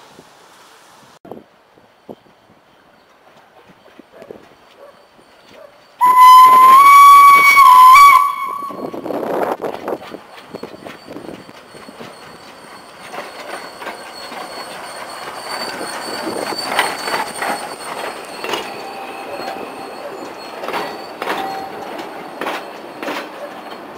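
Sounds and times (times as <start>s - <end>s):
high-pitched wheel squeal: 5.6s - 9.4s, 10.4s - 23.9s
wheels clacking over rail joints: 7.4s - 23.9s.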